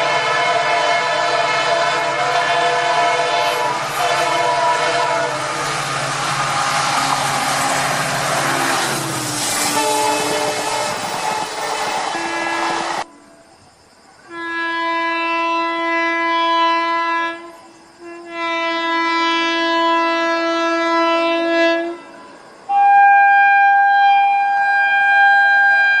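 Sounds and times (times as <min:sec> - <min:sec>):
higher-pitched horn tone: 0:00.0 - 0:13.3
train horn blasts: 0:00.0 - 0:13.5, 0:14.3 - 0:26.0.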